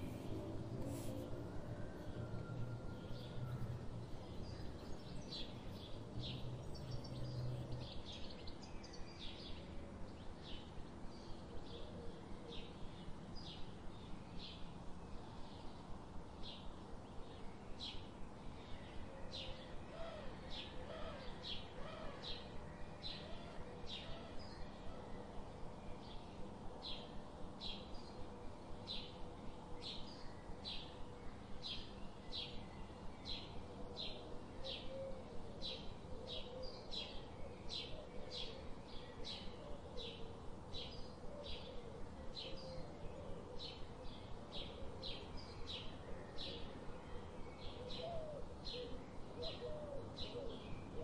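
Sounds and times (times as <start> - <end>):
faint low hum: 0.0 - 21.7.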